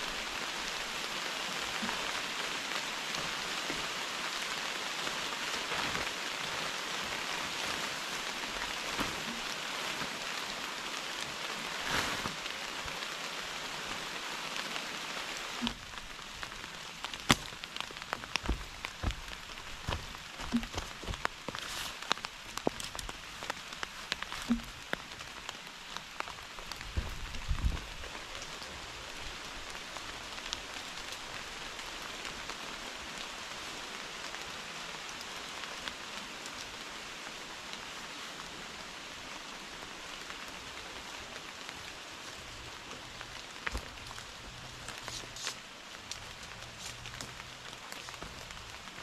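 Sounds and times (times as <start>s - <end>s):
heavy rain hissing: 0.0s - 49.0s
drops ticking and knocking: 17.0s - 23.2s, 24.1s - 25.0s.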